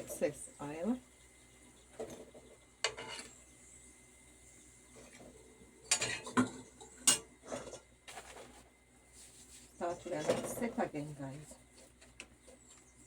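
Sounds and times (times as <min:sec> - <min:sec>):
metal utensils clinking: 0:05.9 - 0:06.5.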